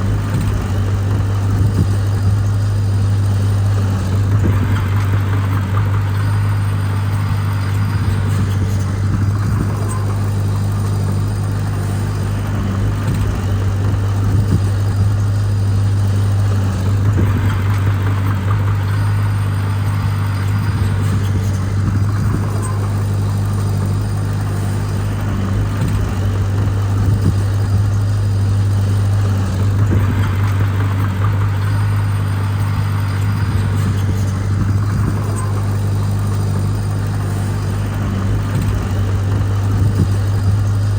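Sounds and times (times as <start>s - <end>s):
harsh mechanical noise: 0.0s - 40.9s
heavy diesel engine droning: 0.0s - 40.9s.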